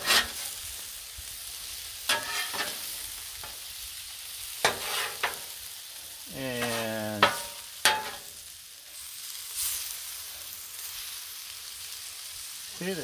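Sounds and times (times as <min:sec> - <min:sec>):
metal spatula scraping griddle: 0:00.0 - 0:00.8, 0:02.1 - 0:03.6, 0:04.5 - 0:05.6, 0:06.4 - 0:08.4
shrimp sizzling on griddle: 0:00.0 - 0:13.0.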